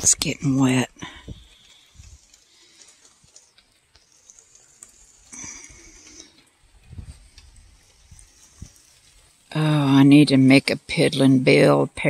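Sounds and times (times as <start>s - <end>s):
drops ticking: 0.0s - 9.4s
steady rain falling: 0.0s - 10.7s.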